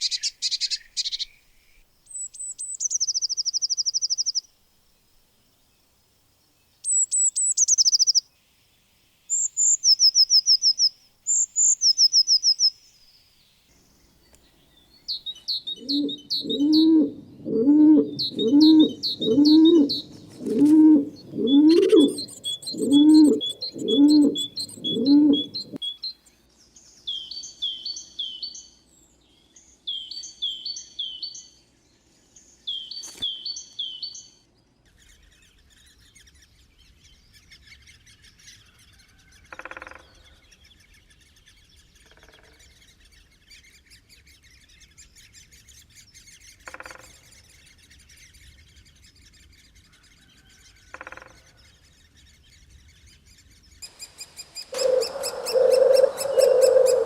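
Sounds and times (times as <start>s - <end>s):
high bird chirps: 0.0s - 4.5s, 6.8s - 8.2s, 9.3s - 13.2s, 14.2s - 26.2s, 53.8s - 57.0s
low bird notes: 15.3s - 25.8s, 53.9s - 57.0s.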